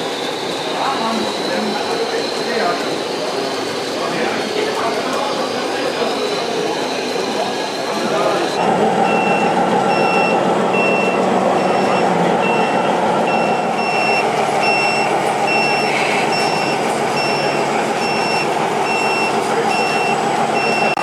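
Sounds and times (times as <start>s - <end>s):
crowd murmur: 0.0s - 21.0s
reversing beeper short beeps: 8.5s - 21.0s.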